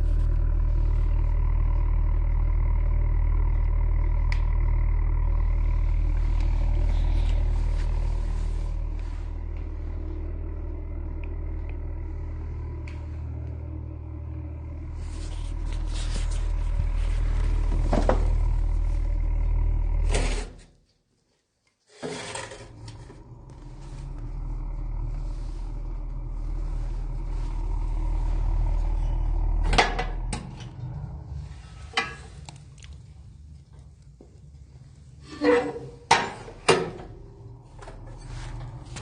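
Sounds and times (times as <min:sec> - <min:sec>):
fire rumbling in a stove: 0:00.0 - 0:20.4, 0:22.1 - 0:39.0.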